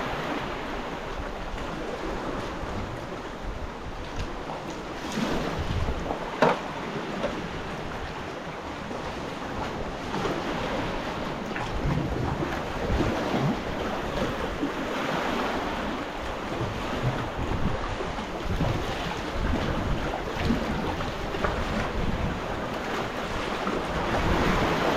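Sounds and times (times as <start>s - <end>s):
water splashing around kayak: 0.0s - 24.9s
wind buffeting microphone: 0.0s - 24.9s.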